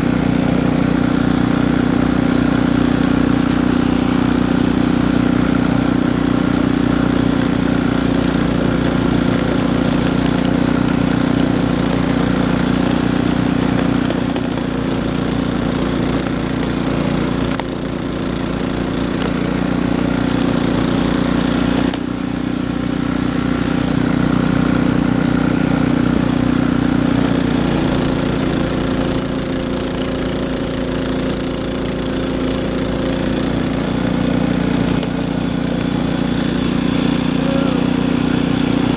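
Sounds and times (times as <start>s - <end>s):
snowblower engine running: 0.0s - 38.9s.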